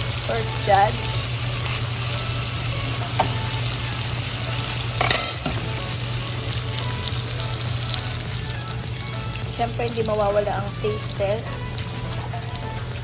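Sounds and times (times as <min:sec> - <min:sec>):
meat sizzling in oil: 0:00.0 - 0:13.0
spoon clattering against pan: 0:05.0 - 0:05.6.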